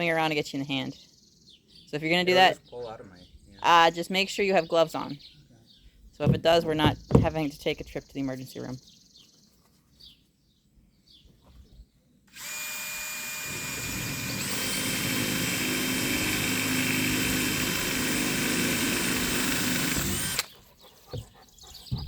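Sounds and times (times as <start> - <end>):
power drill drilling metal: 12.3 - 20.5.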